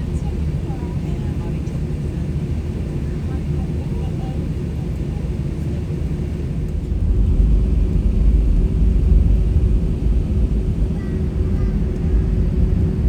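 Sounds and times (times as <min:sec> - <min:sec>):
aircraft engines rumbling: 0:00.0 - 0:13.0.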